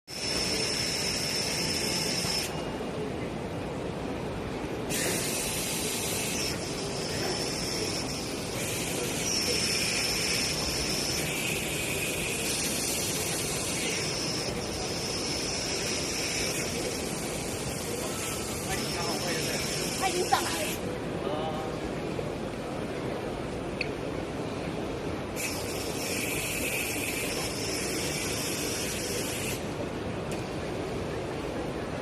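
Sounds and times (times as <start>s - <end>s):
high whine and hiss: 0.0s - 32.0s.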